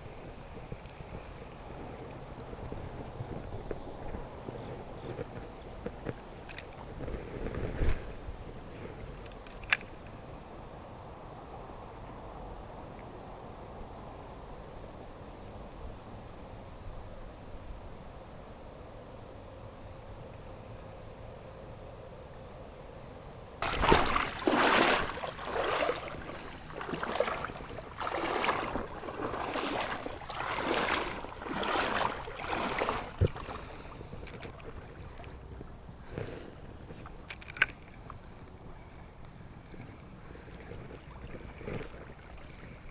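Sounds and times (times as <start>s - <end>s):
water sloshing splashes: 23.6s - 38.4s
river water running: 23.6s - 42.9s.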